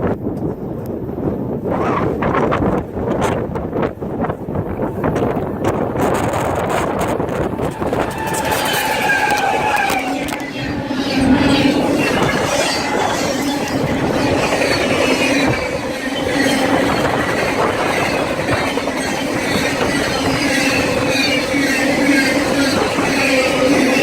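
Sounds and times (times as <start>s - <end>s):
train wheels rumbling on rails: 0.0s - 24.0s
high-pitched wheel squeal: 7.5s - 24.0s.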